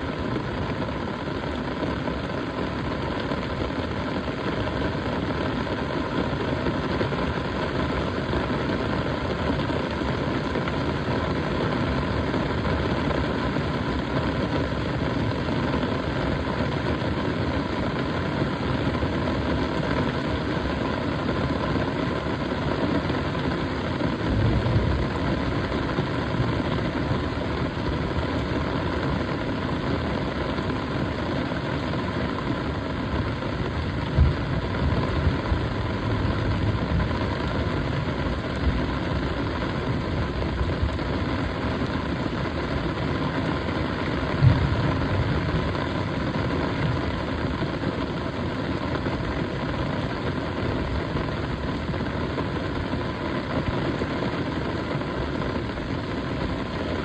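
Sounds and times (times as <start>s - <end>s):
drone propellers humming: 23.0s - 48.8s
low rumble: 23.8s - 30.4s, 32.4s - 47.6s.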